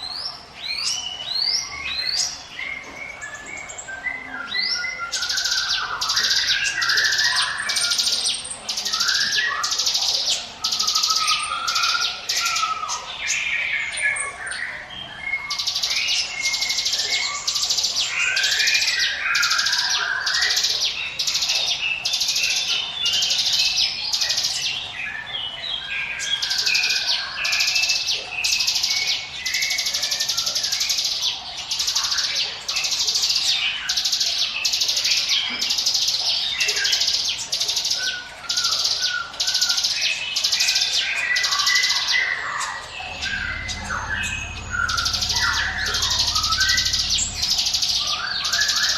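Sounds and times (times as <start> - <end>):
bird chirps: 0.0 - 48.9
bird singing buzzy high notes: 40.5 - 48.9.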